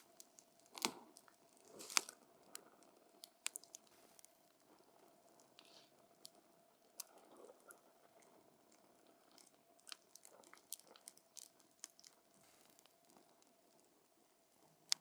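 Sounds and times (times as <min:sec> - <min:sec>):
faint fire hiss: 0:00.0 - 0:08.8, 0:12.2 - 0:15.0.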